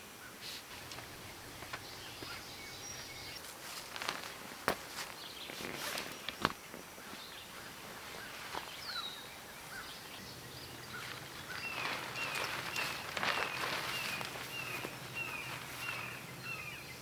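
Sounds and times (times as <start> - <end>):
songbird chirping: 0.2 - 17.0
light rustling: 10.7 - 16.4.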